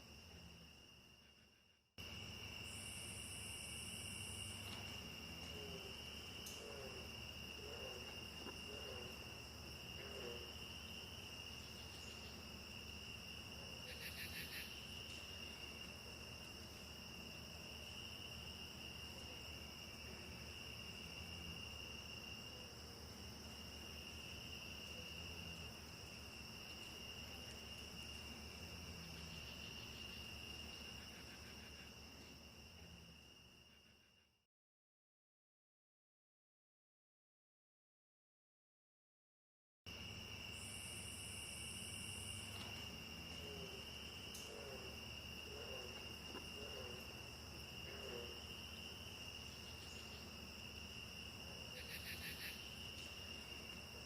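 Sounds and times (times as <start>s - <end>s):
crickets trilling: 0.0s - 34.4s, 39.9s - 54.0s.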